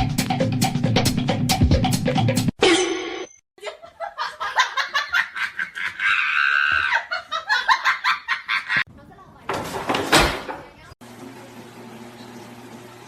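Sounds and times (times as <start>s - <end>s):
person laughing hard: 3.6s - 8.8s.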